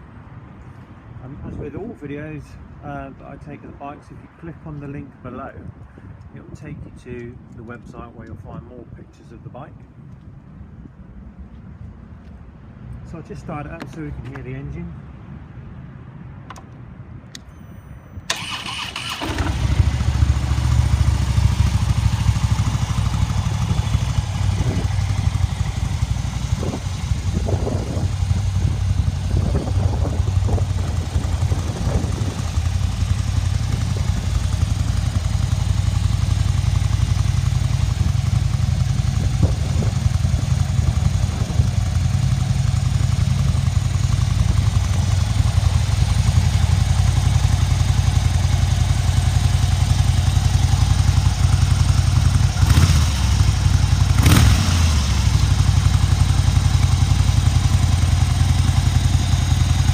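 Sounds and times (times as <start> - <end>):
motorcycle starter whirr: 17.3 - 27.4
motorcycle engine idling: 18.3 - 59.9.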